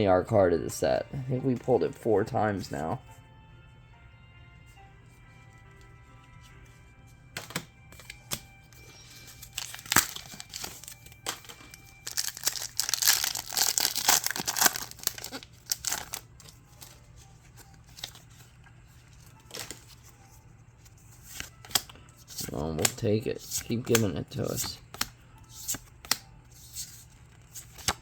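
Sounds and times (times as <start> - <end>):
soft background music: 0.0 - 28.0
foil wrapper crinkling and tearing: 9.2 - 16.9.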